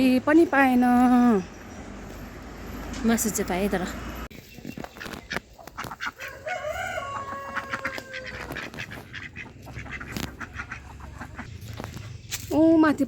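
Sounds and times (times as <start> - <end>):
rooster crowing: 6.2 - 8.6.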